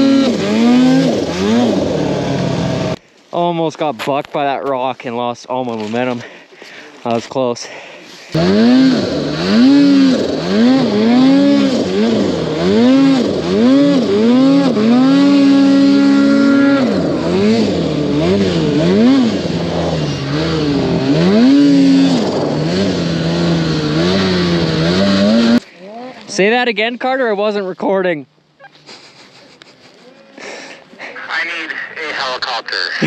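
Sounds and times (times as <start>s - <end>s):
snowmobile engine revving: 0.0s - 3.0s, 8.0s - 26.6s.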